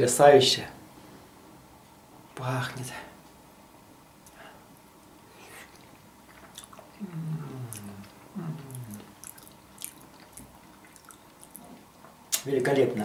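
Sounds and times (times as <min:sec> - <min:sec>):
man chewing with wet mouth clicks: 0:05.5 - 0:12.5
man humming mmm: 0:06.9 - 0:09.1.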